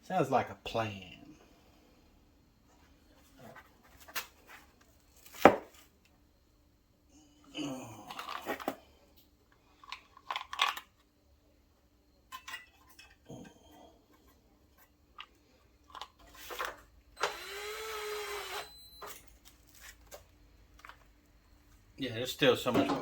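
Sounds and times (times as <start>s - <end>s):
small motor whirring: 17.2s - 18.9s.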